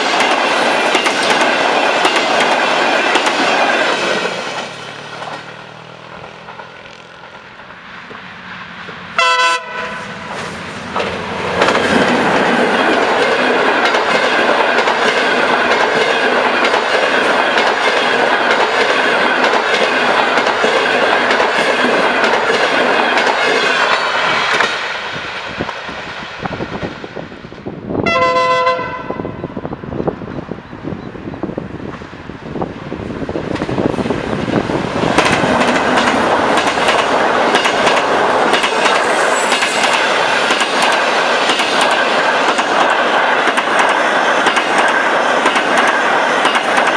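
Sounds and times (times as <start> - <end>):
train wheels rushing on rail: 0.0 - 46.9
train horn blast: 9.2 - 10.4, 28.0 - 29.5.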